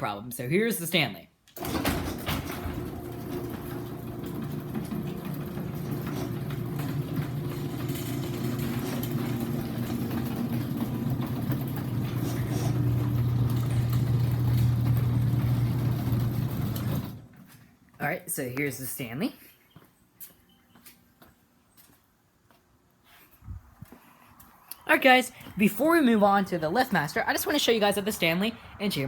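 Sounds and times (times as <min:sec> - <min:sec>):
garage door opener motor hum: 0:01.6 - 0:17.5.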